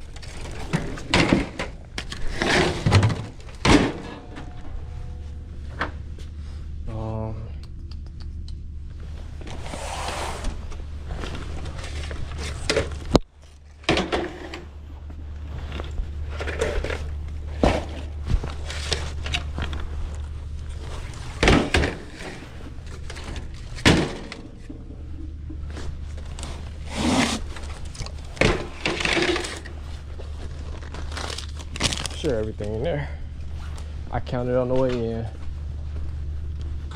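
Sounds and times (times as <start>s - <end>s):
steady low hum: 0.0s - 36.9s
knocks bangs and clatters: 0.6s - 6.2s.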